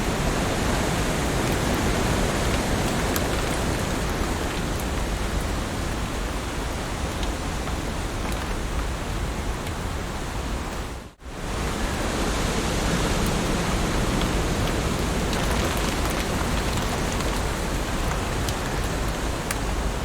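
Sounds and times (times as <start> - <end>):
heavy rain hissing: 0.0 - 20.0
raindrop ticks: 0.3 - 9.8, 13.2 - 20.0.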